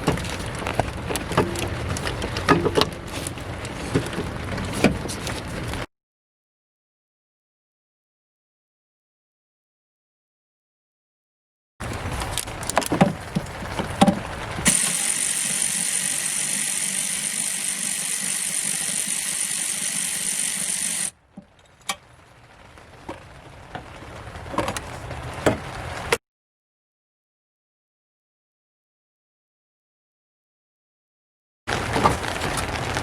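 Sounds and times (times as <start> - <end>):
steady hiss: 11.8 - 21.1.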